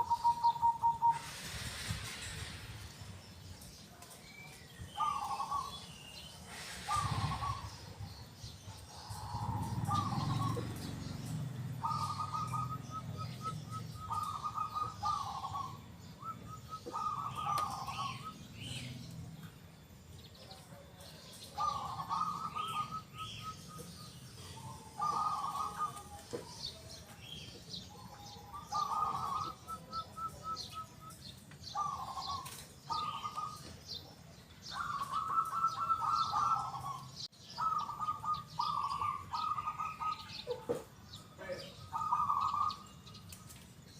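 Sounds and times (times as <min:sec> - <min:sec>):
dove cooing: 0:00.0 - 0:01.5, 0:05.0 - 0:05.8, 0:06.6 - 0:18.9, 0:21.4 - 0:26.8, 0:27.9 - 0:31.1, 0:31.7 - 0:33.7, 0:34.7 - 0:40.9, 0:41.5 - 0:42.9.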